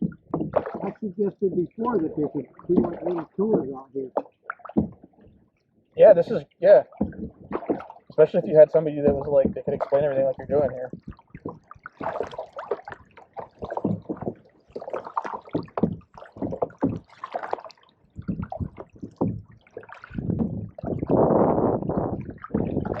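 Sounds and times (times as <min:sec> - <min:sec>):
water rushing: 0:00.0 - 0:04.2, 0:06.0 - 0:11.4
water splashing around canoe: 0:00.0 - 0:23.0.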